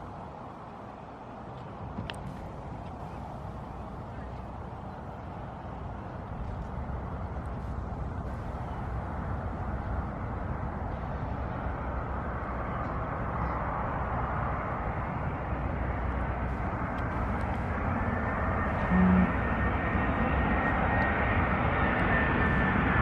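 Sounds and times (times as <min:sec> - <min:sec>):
jet airliner engine rush: 0:00.0 - 0:23.0.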